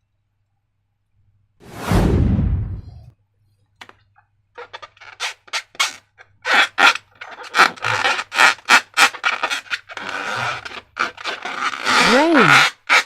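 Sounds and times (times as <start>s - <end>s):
slime rubbing and scraping: 4.6s - 13.0s.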